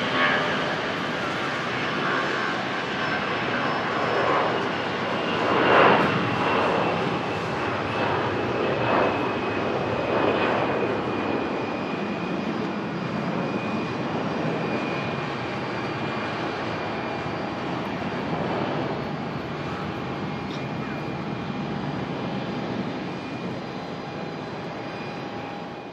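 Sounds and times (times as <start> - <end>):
jet engines at takeoff: 0.0 - 25.9.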